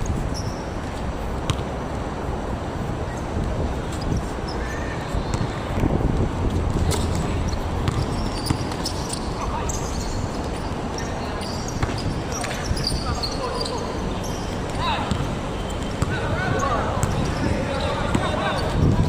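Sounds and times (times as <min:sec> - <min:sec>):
general game noise: 0:00.0 - 0:19.0
basketball bouncing on a court: 0:01.4 - 0:01.7, 0:06.8 - 0:09.0, 0:11.8 - 0:12.6, 0:15.0 - 0:19.0.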